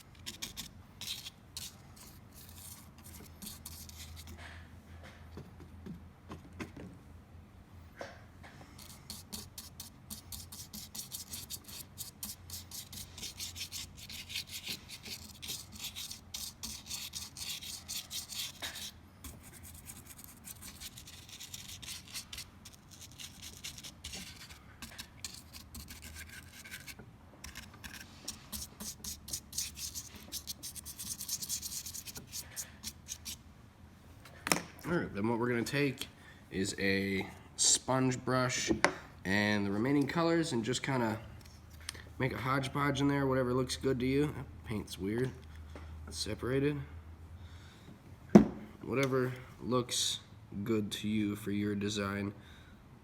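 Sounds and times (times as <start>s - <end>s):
paintbrush scrubbing on foam: 0.0s - 4.4s, 8.8s - 33.4s.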